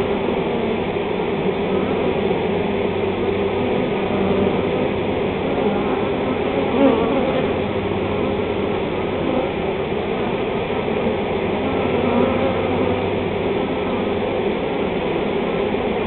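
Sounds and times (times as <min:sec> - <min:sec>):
bee swarm buzzing: 0:00.0 - 0:16.0.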